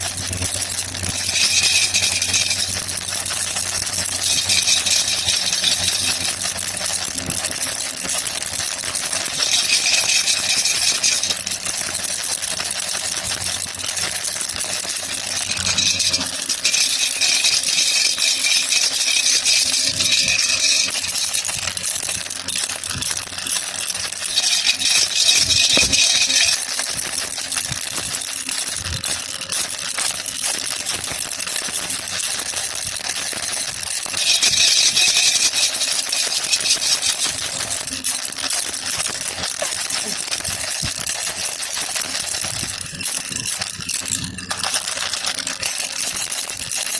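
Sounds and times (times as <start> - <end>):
baby rattle shaking: 0.0 - 46.9.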